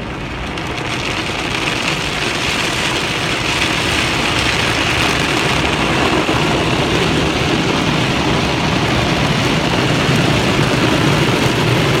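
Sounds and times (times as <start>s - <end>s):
car wash machinery: 0.0s - 12.0s.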